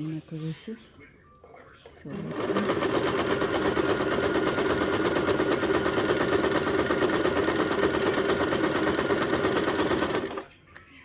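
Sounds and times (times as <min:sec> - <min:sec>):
sewing machine running: 0:02.1 - 0:10.5.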